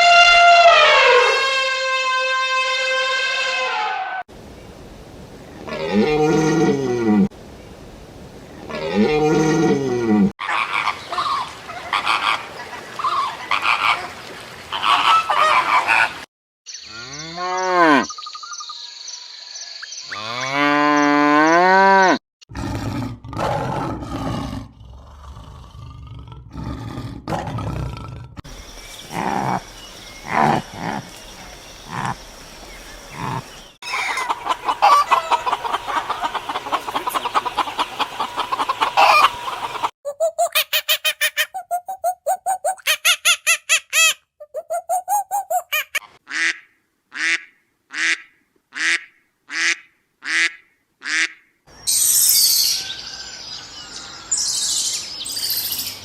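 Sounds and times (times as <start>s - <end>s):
animal calls rising and falling: 33.2s - 46.2s
fast short repeated calls: 40.1s - 46.1s.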